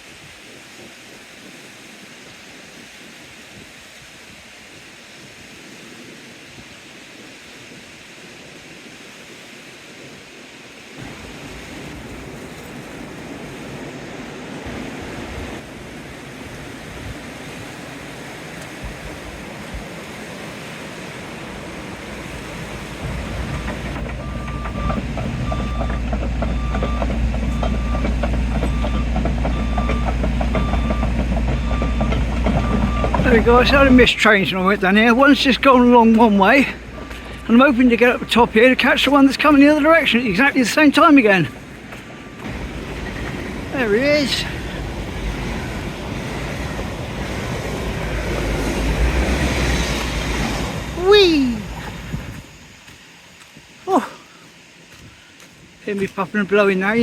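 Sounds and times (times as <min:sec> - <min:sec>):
waves washing: 0:00.0 - 0:57.0
train passing with deep rumble: 0:10.7 - 0:53.8
short beeps: 0:24.2 - 0:34.1, 0:36.1 - 0:38.7.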